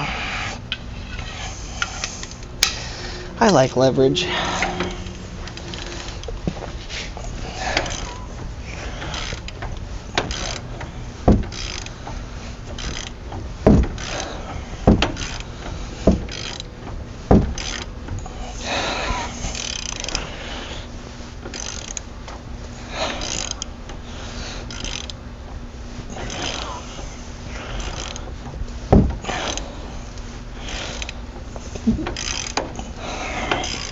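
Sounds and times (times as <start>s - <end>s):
metal scraping: 0.0s - 16.7s
ratchet pawl clicking: 0.0s - 20.8s, 21.4s - 22.4s, 23.0s - 25.2s, 26.1s - 28.3s, 29.2s - 33.9s
heavy metal clunks: 4.1s - 18.4s, 28.4s - 29.5s.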